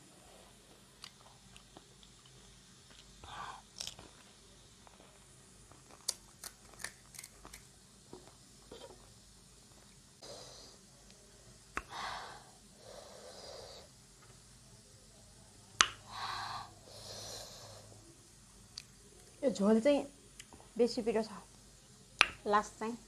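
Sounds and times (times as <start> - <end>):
person breathing hard through mouth: 11.8 - 13.9, 16.1 - 17.9.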